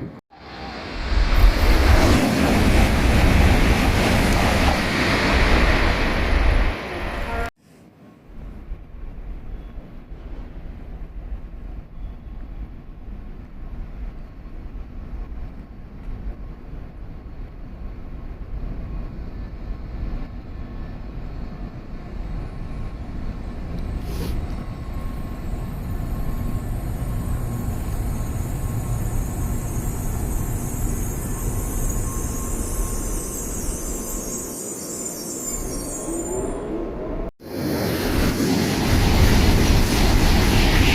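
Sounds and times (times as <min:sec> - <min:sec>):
train rumble: 0:00.0 - 0:07.5, 0:08.2 - 0:40.9
high-pitched train hiss: 0:20.8 - 0:36.7.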